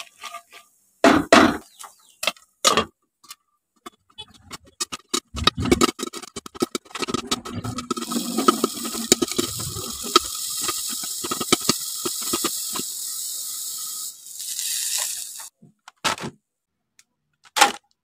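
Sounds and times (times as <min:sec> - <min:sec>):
food sizzling in hot oil: 0:07.8 - 0:15.5.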